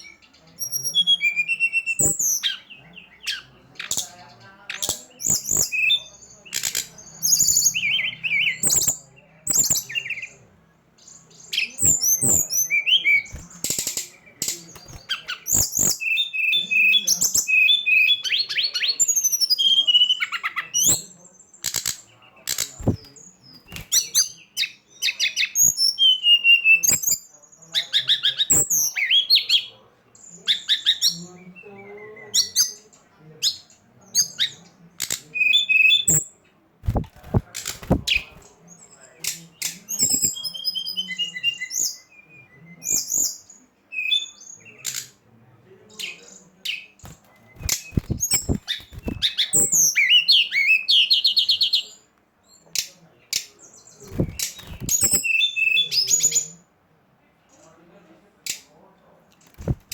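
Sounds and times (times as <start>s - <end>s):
songbird chirping and trilling: 0.0s - 59.9s.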